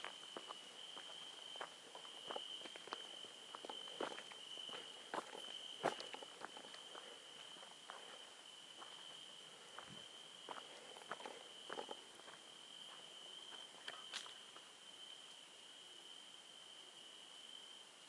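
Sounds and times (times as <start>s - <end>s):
footsteps crunching on forest floor: 0.0s - 14.7s
crickets chirping: 0.0s - 18.0s.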